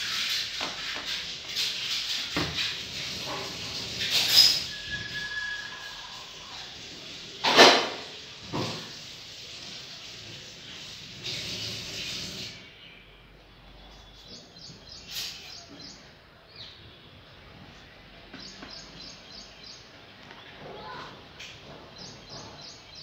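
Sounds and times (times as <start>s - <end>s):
scraping rustle: 0.0s - 12.6s
steady background noise: 0.0s - 23.0s.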